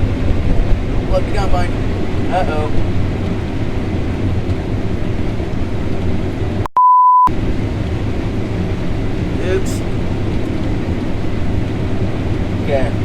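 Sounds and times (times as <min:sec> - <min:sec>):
harvest machinery engine rumble: 0:00.0 - 0:06.7, 0:07.3 - 0:13.0
censor bleep: 0:06.7 - 0:07.3.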